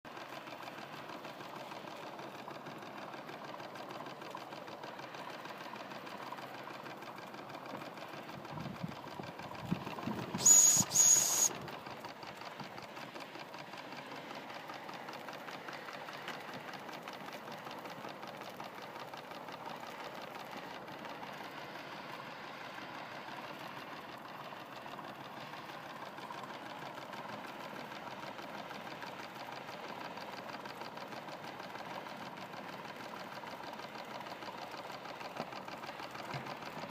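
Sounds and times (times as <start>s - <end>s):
steam engine ticking: 0.2s - 21.7s
loud short hissing blasts: 10.4s - 11.5s.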